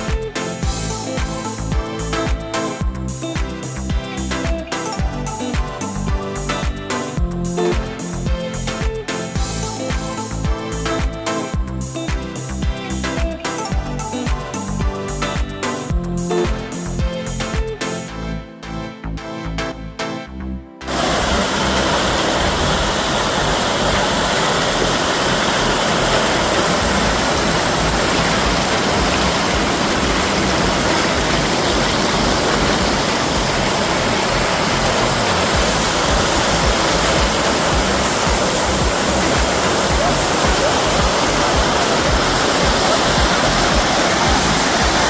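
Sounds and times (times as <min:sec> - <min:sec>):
water pouring from dam: 0:20.9 - 0:45.0.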